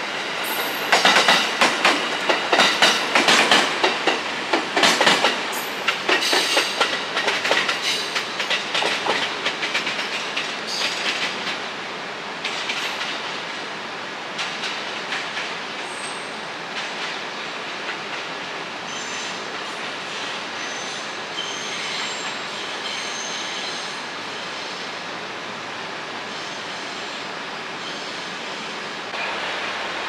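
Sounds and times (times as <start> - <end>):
train wheels clicking over rail joints: 0.5 - 11.6.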